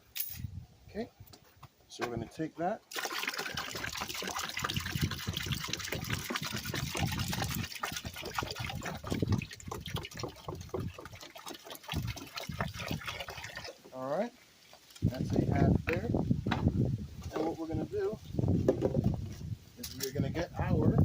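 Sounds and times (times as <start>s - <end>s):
liquid pouring into a bin: 2.9s - 13.8s.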